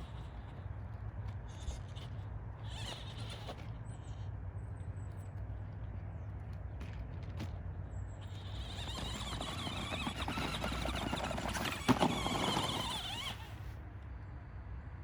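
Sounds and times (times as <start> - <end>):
toy truck electric motor whining: 1.5 - 4.1, 8.2 - 13.8.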